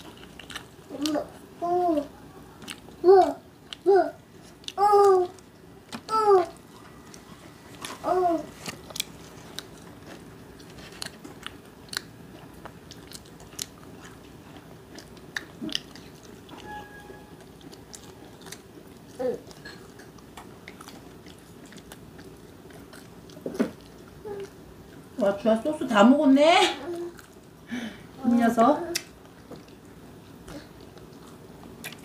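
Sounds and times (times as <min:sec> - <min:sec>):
biting and chewing fried chicken: 0:00.0 - 0:25.2, 0:26.9 - 0:27.6, 0:28.9 - 0:32.0
small child vocal sound: 0:00.9 - 0:02.4, 0:03.0 - 0:05.4, 0:06.1 - 0:06.6, 0:08.0 - 0:08.6, 0:19.2 - 0:19.8.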